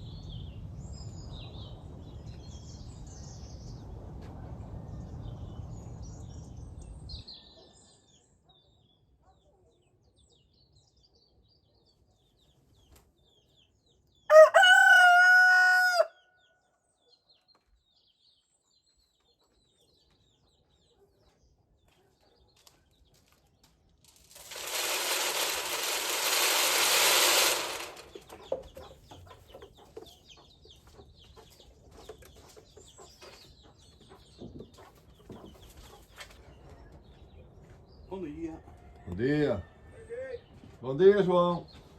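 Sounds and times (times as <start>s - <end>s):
rooster crowing: 14.3s - 16.3s
rushing hiss-like noise: 24.4s - 28.1s.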